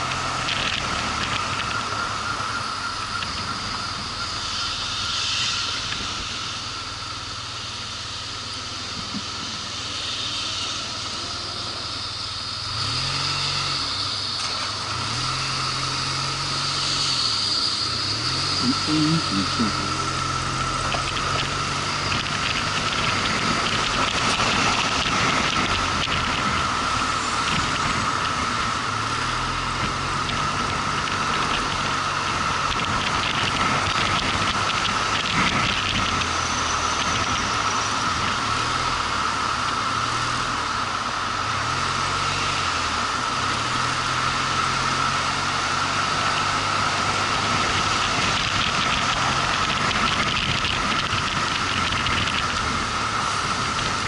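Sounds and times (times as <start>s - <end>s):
motorcycle engine running: 0.0s - 54.0s
steady high whine: 0.0s - 54.0s
wind rush: 2.6s - 7.3s.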